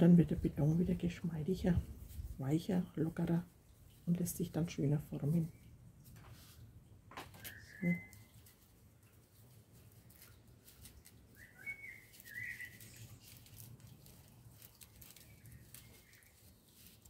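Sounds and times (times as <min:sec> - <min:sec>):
faint bird chirps: 0:07.3 - 0:08.5, 0:11.3 - 0:13.4
hands working wet concrete on foil: 0:07.3 - 0:17.0.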